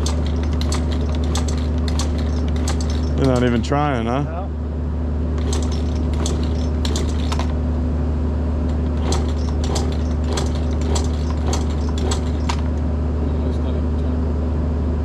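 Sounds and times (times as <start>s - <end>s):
metallic clicks and rattles: 0.0s - 3.6s, 5.4s - 7.6s, 8.7s - 12.8s
engine idling: 0.0s - 14.1s.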